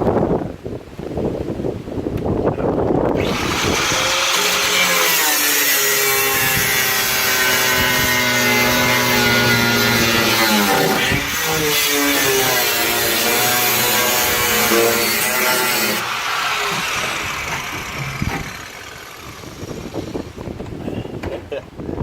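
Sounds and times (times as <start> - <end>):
power tool cutting steel: 3.2 - 20.4.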